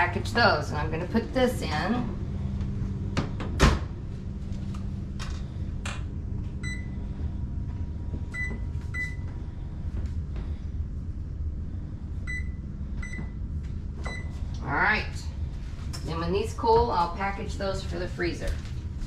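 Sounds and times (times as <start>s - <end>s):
steady low hum: 0.0s - 19.0s
appliance keypad beeps: 6.6s - 7.0s, 8.3s - 9.2s, 12.3s - 13.4s.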